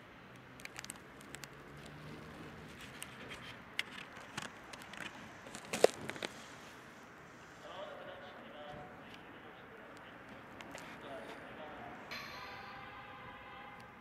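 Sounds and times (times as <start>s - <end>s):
faint steady background: 0.0s - 14.0s
sharp ringing clank: 12.1s - 14.0s.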